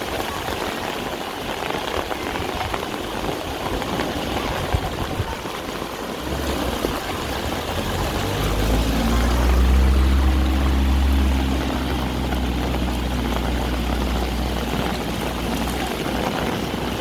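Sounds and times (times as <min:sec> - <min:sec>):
heavy rain falling: 0:00.0 - 0:17.0
low vehicle engine hum: 0:05.8 - 0:17.0.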